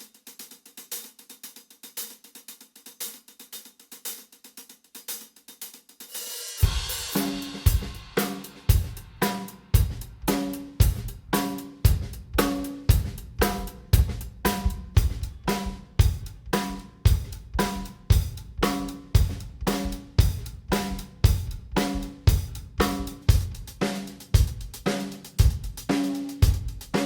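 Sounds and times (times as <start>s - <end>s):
hi-hat strokes: 0.0s - 9.7s
kick drum and snare: 6.6s - 27.0s.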